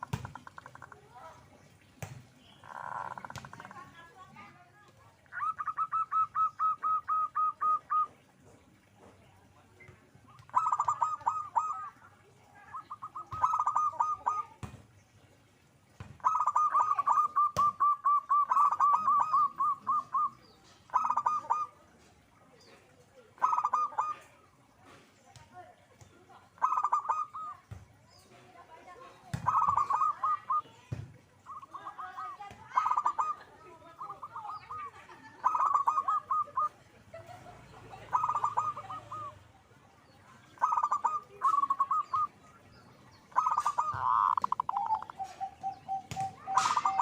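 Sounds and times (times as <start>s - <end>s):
dove cooing: 2.6s - 3.9s, 5.2s - 8.9s, 10.3s - 14.6s, 16.2s - 21.8s, 23.4s - 24.4s, 26.6s - 27.7s, 29.0s - 39.5s, 40.4s - 42.6s, 43.2s - 47.0s.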